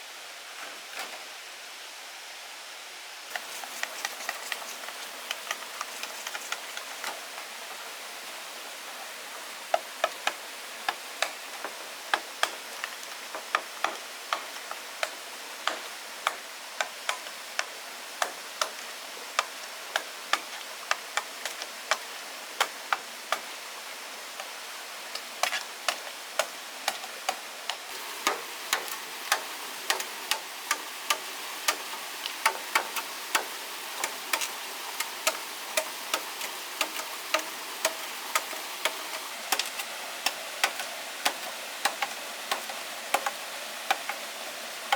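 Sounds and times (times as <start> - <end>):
cooking fire crackling: 3.3 - 7.9, 25.1 - 44.4.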